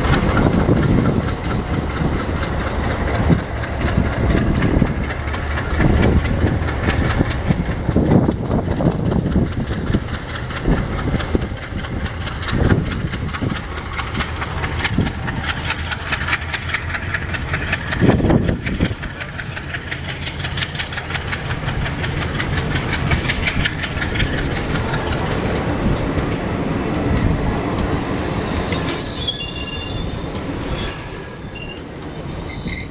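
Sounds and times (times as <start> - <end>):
diesel locomotive engine running: 0.0 - 32.9
fast regular clatter: 0.1 - 25.8.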